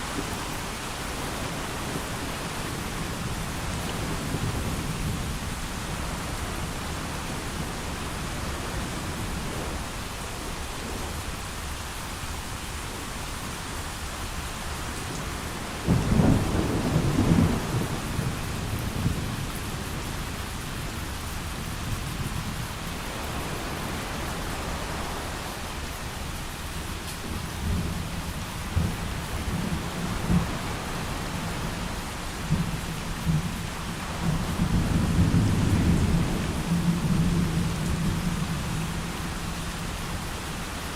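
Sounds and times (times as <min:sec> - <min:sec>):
heavy rain falling: 0:00.0 - 0:40.9
thunder clap and rumble: 0:15.7 - 0:20.1, 0:27.6 - 0:39.4.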